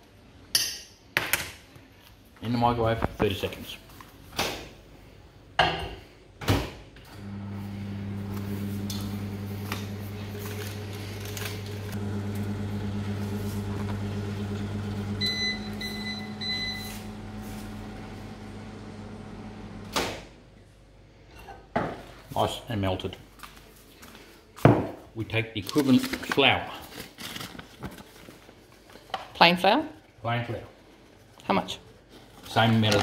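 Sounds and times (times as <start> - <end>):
microwave oven humming: 7.2 - 20.0
microwave beeps: 14.0 - 18.9.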